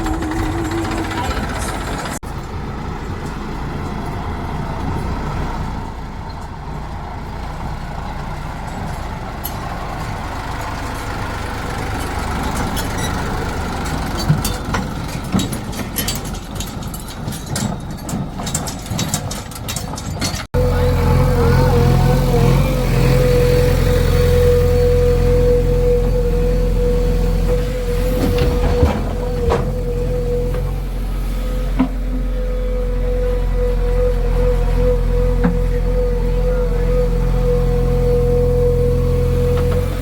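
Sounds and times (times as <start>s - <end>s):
diesel engine running: 0.0s - 40.0s
metal clanks and knocks: 12.0s - 20.5s, 27.5s - 30.8s.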